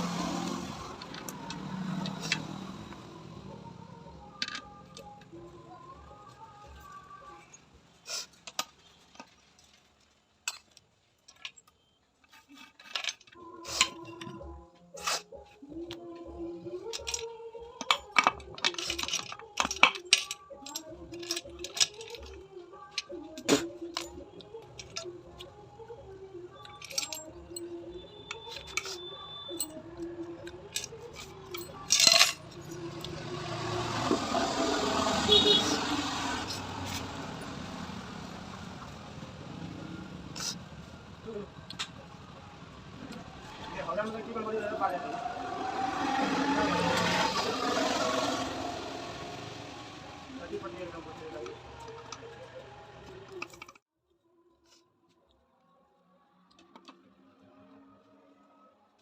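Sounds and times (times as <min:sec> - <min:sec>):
metal parts and tools clinking: 0:00.2 - 0:03.0, 0:04.2 - 0:05.4, 0:06.2 - 0:25.6, 0:26.5 - 0:33.6, 0:36.4 - 0:37.5, 0:40.2 - 0:45.2, 0:50.4 - 0:53.8
metal parts clinking on workbench: 0:10.5 - 0:14.4, 0:16.8 - 0:25.1, 0:26.6 - 0:27.7, 0:30.4 - 0:33.2, 0:53.2 - 0:53.8.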